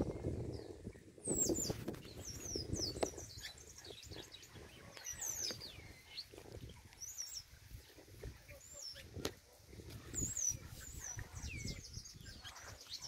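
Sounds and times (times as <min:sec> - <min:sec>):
blackbird singing whistled notes: 0:00.1 - 0:06.3, 0:10.2 - 0:13.0.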